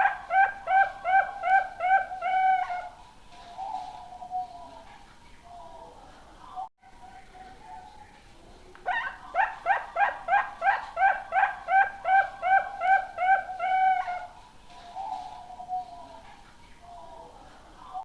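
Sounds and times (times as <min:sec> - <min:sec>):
dove cooing: 0:00.0 - 0:04.9, 0:08.8 - 0:16.3.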